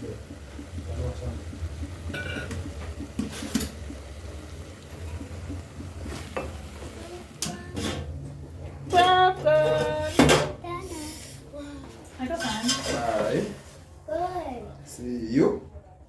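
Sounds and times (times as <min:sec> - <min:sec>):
steady low hum: 0:00.0 - 0:12.1
pot and utensils clinking: 0:02.0 - 0:04.2, 0:06.1 - 0:10.6, 0:12.3 - 0:13.4.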